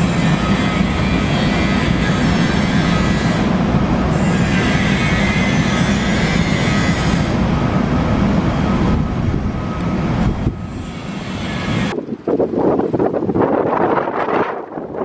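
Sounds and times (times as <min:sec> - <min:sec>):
high wheel squeal: 0:00.0 - 0:03.5, 0:04.1 - 0:07.4, 0:09.8 - 0:11.9
freight train rumbling past: 0:00.0 - 0:15.0
wind buffeting microphone: 0:00.0 - 0:15.0.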